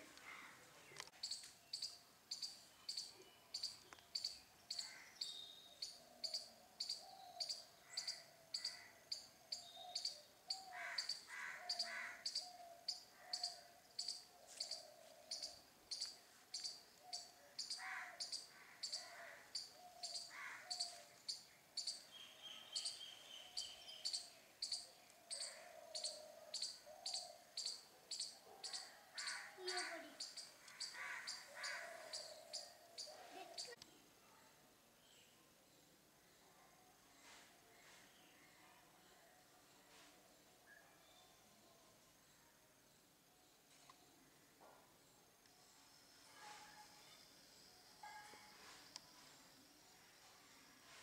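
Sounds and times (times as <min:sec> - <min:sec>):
lower bird calls: 0:01.2 - 0:33.8.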